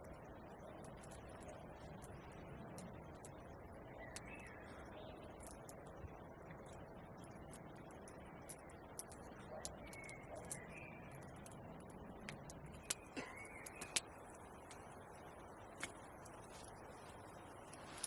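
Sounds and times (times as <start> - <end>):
sharp clicks and crackles: 0.0 - 18.0
steady low hiss: 0.0 - 18.0.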